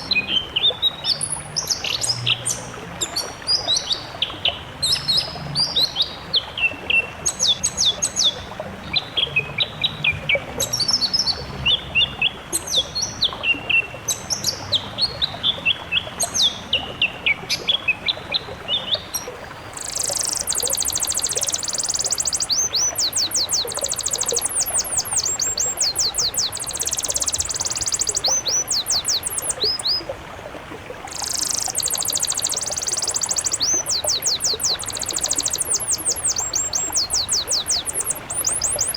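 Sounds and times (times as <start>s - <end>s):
high rapid bird song: 19.4s - 30.2s, 30.9s - 38.9s
songbird chirping phrases: 19.4s - 30.2s, 30.9s - 38.9s.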